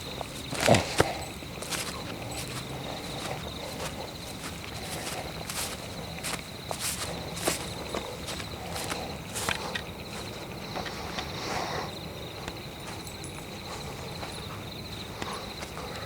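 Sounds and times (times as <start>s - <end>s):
footsteps crunching on leaves: 0.0s - 11.3s
high insect trill: 0.0s - 16.0s.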